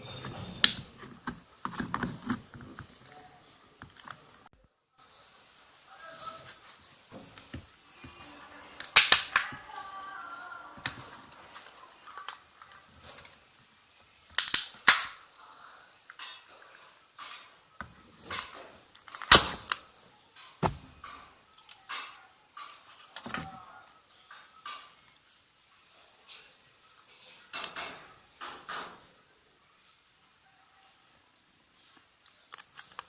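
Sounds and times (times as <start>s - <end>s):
plastic scraping: 0.0s - 3.1s
plastic casing cracking and clicking: 8.8s - 9.6s, 14.3s - 15.2s, 18.3s - 19.8s.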